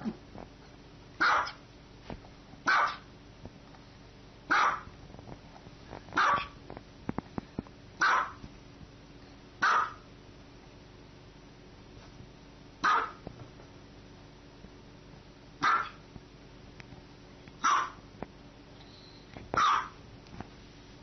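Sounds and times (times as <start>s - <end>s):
small dog barking: 1.2s - 1.6s, 2.6s - 3.1s, 4.5s - 4.9s, 6.2s - 6.6s, 8.0s - 8.4s, 9.6s - 10.1s, 12.8s - 13.2s, 15.6s - 16.0s, 17.6s - 18.0s, 19.6s - 20.0s.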